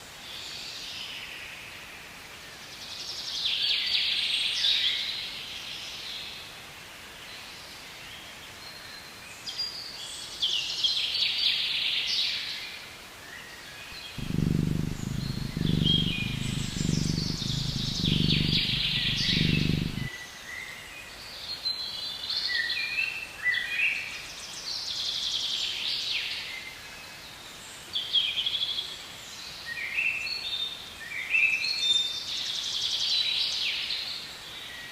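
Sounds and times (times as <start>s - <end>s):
background hiss: 14.2s - 20.1s
low pulsing sound: 14.2s - 20.1s.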